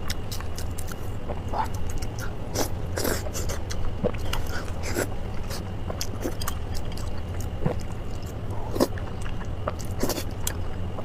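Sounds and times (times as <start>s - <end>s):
low steady hum: 0.0s - 11.0s
wet chewing and lip smacks: 3.3s - 11.0s.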